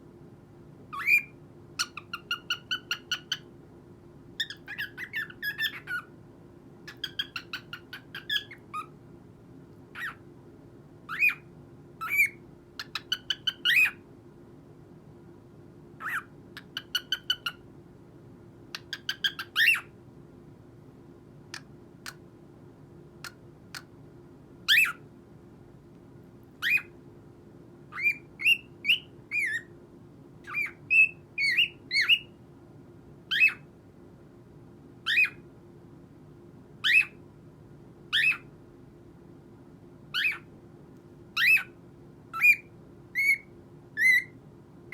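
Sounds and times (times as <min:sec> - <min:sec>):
cockatiel chirping and squawking: 0:00.9 - 0:03.5, 0:04.4 - 0:06.1, 0:06.9 - 0:08.9, 0:10.0 - 0:10.2, 0:11.1 - 0:14.0, 0:16.0 - 0:17.6, 0:18.7 - 0:19.9, 0:24.7 - 0:25.0, 0:26.6 - 0:26.9, 0:27.9 - 0:29.7, 0:30.4 - 0:32.3, 0:33.3 - 0:33.7, 0:35.1 - 0:35.4, 0:36.8 - 0:37.2, 0:38.1 - 0:38.5, 0:40.1 - 0:40.5, 0:41.4 - 0:41.8, 0:42.4 - 0:44.4.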